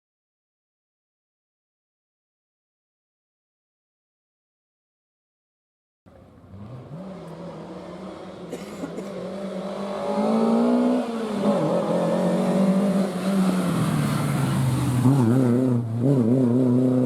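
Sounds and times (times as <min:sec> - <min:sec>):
rally car engine revving: 0:06.1 - 0:17.0.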